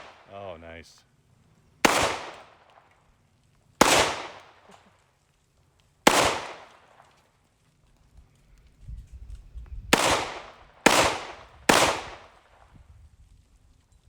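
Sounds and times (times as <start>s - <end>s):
gunshots with ringing echo: 0.0s - 0.3s, 1.8s - 2.7s, 3.8s - 4.7s, 6.1s - 6.9s, 9.9s - 12.3s.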